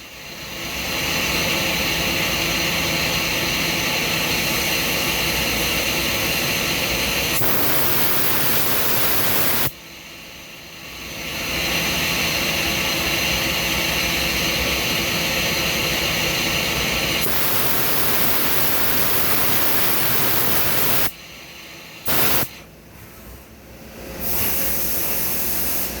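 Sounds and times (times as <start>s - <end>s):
machine tool rushing hiss: 4.1s - 9.7s, 17.2s - 23.3s, 24.2s - 26.0s.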